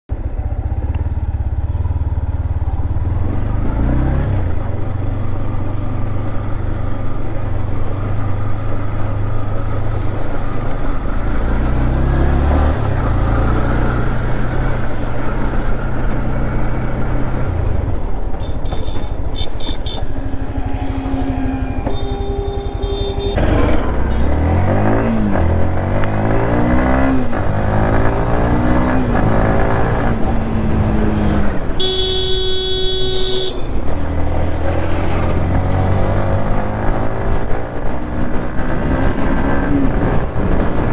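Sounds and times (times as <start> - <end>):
motorcycle engine accelerating: 0.1 - 40.9
steady high tone: 19.9 - 24.4.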